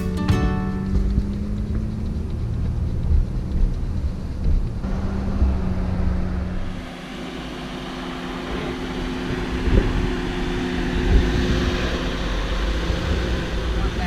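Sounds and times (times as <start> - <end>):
road noise on dirt road: 0.0 - 14.0
truck engine running: 0.0 - 14.0.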